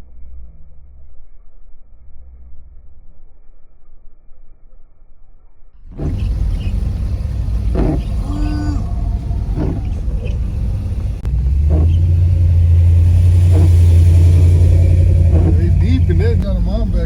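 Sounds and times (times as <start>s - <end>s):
car engine rumbling: 5.9s - 17.0s.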